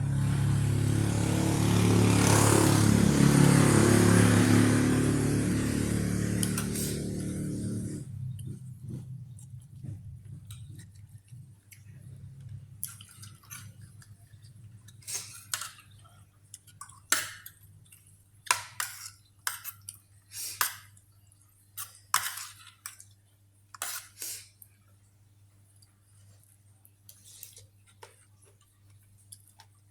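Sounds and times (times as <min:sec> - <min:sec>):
person chewing with wet smacks: 0:08.3 - 0:20.1, 0:25.7 - 0:29.9.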